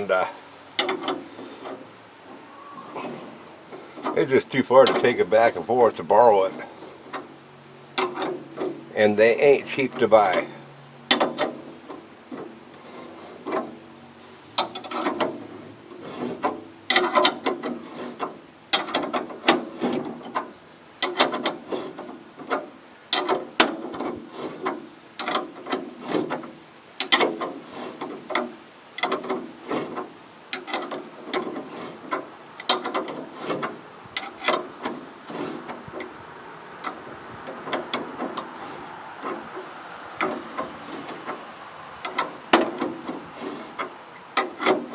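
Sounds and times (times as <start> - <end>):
wrench clicking on metal bolts: 16.4 - 36.1.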